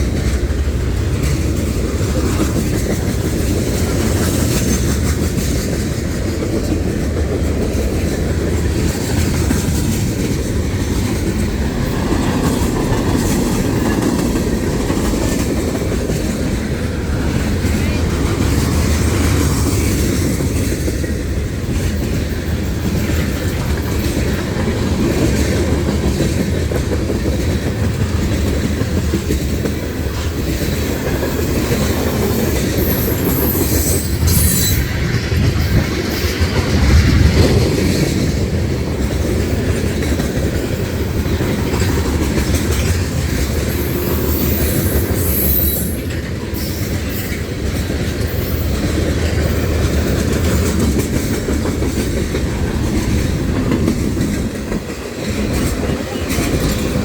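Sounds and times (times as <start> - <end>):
freight train cars rumbling past: 0.0 - 57.0
wheels clacking over rail joints: 0.0 - 57.0
high wheel squeal: 32.4 - 35.1, 43.8 - 47.4.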